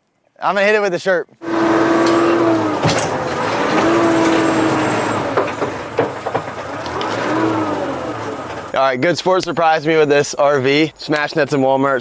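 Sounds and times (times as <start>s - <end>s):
chainsaw revving: 1.4s - 8.8s
wood cracking: 1.5s - 8.8s.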